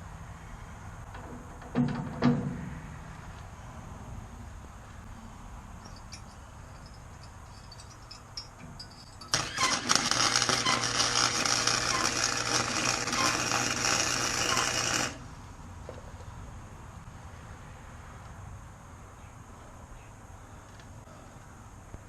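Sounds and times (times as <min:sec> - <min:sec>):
crackling welding arc: 0:09.3 - 0:15.3.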